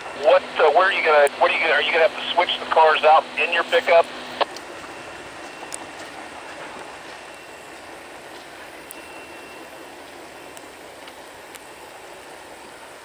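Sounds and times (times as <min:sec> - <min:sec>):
train wheels on track: 0:00.0 - 0:13.0
faint clicks: 0:08.3 - 0:09.1, 0:10.0 - 0:12.0.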